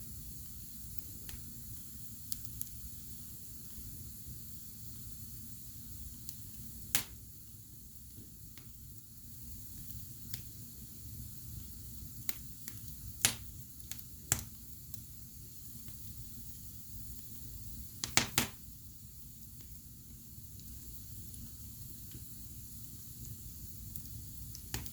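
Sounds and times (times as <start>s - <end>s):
wood fire crackling: 0.0s - 24.9s
sharp pops of fire: 0.3s - 3.9s, 6.0s - 7.4s, 8.1s - 8.8s, 9.4s - 10.7s, 11.4s - 18.7s, 23.2s - 24.9s.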